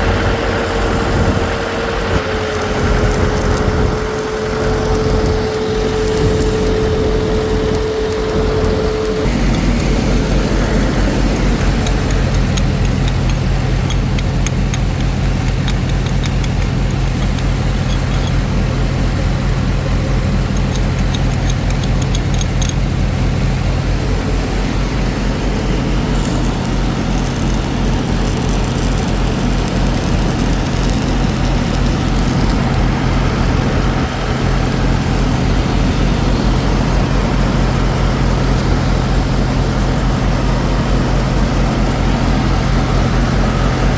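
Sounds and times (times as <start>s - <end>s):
engine humming steadily: 0.0s - 43.9s
faint rapid ticking: 2.0s - 23.9s, 25.7s - 37.2s.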